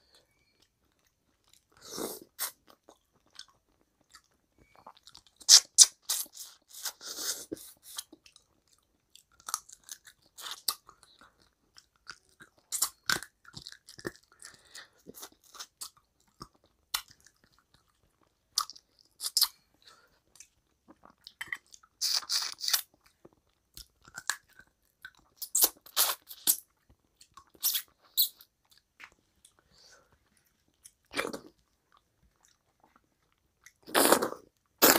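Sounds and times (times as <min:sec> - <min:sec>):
wet mouth clicks and smacks chewing: 0:07.6 - 0:19.6.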